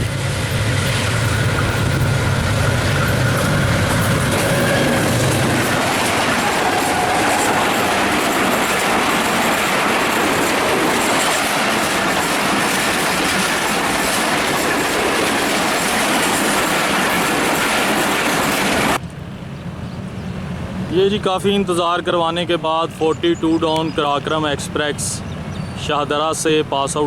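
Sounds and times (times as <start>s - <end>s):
train wheels clattering over rails: 0.0s - 19.0s.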